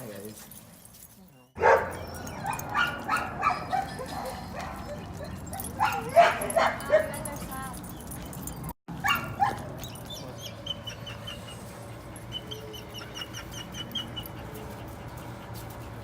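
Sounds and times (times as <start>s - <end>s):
dog yelping: 1.6s - 14.9s
dog whimpering: 1.9s - 6.4s, 9.8s - 15.3s.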